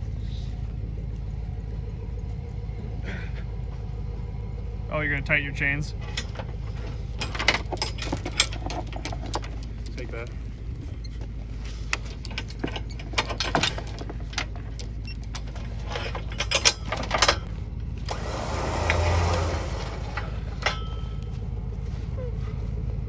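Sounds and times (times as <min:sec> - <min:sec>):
low hum: 0:00.0 - 0:23.0
whirring rush: 0:00.0 - 0:23.0
steel chains clinking: 0:04.4 - 0:21.8.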